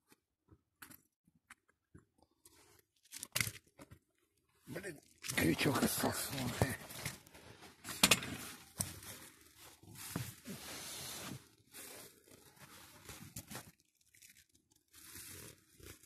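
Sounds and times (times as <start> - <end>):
faint rustling and crackling: 5.2 - 16.0.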